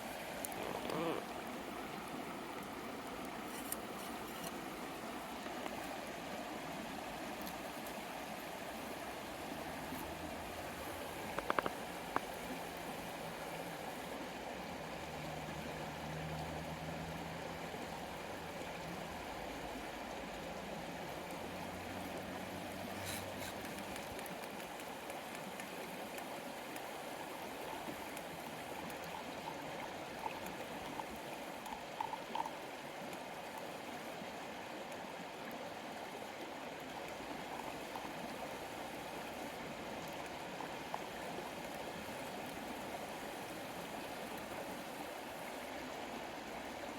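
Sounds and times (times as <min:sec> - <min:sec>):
river flowing: 0:00.0 - 0:46.9
small ticks: 0:11.3 - 0:12.3, 0:23.0 - 0:26.9.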